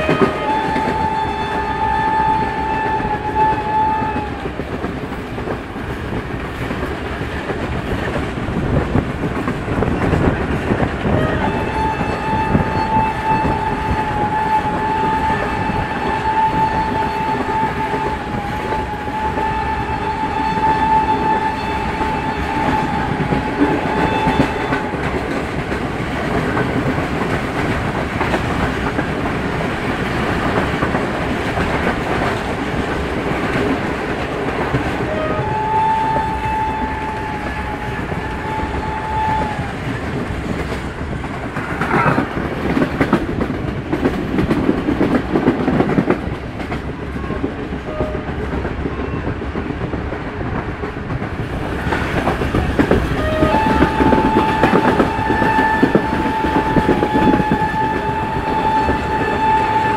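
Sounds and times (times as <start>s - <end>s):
train horn blast: 0.0s - 4.6s, 11.0s - 25.4s, 34.8s - 40.0s, 47.2s - 49.4s, 52.8s - 59.9s
train rumble and wheel clatter: 0.0s - 59.9s.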